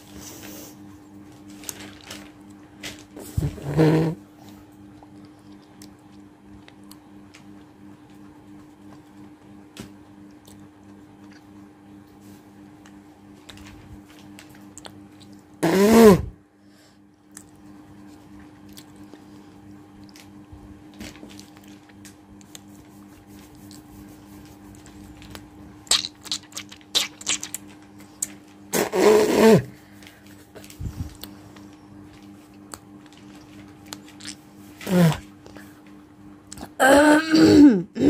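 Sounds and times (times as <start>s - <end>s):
steady low hum: 0.0s - 38.0s
wet mouth clicks: 25.2s - 29.4s, 33.9s - 34.4s
woman hawking from the throat: 34.8s - 35.2s, 36.7s - 38.0s.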